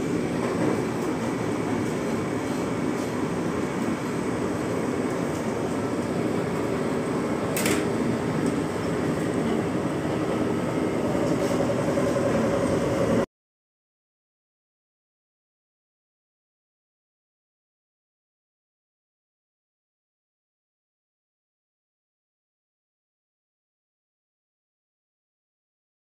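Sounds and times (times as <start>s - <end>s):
air-conditioning noise: 0.0s - 13.3s
train rumble on track: 0.0s - 13.3s.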